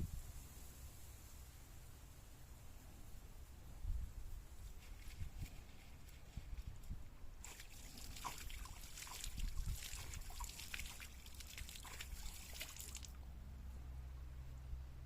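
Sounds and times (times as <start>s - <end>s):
low steady rumble: 0.0s - 15.0s
water trickling and splashing: 4.9s - 13.2s.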